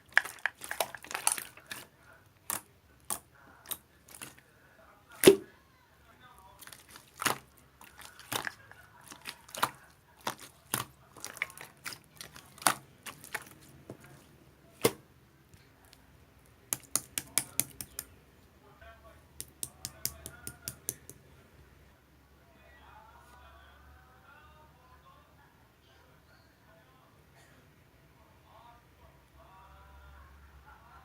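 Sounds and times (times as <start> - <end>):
sharp clicks and taps: 16.7 - 18.1, 19.4 - 21.2.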